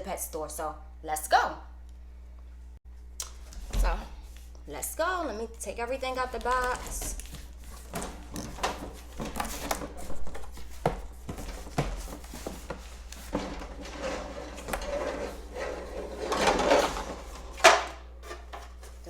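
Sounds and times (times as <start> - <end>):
rubbing and rustling: 6.2 - 19.0.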